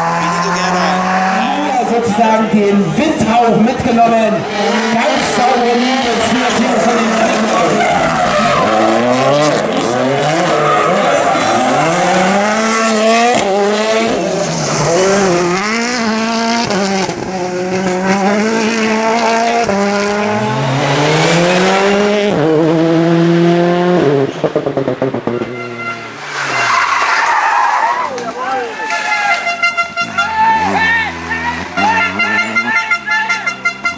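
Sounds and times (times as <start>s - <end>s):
rally car engine revving: 0.0s - 33.9s
tyre squeal: 6.8s - 9.1s, 25.3s - 33.9s.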